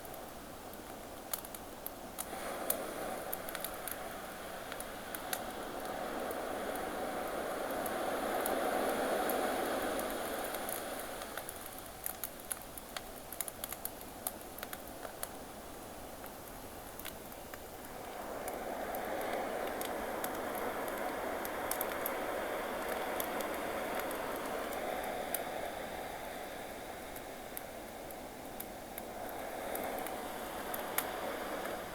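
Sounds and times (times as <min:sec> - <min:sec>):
campfire crackling: 0:00.0 - 0:31.9
ocean waves washing in and out: 0:02.2 - 0:12.7, 0:16.5 - 0:31.9.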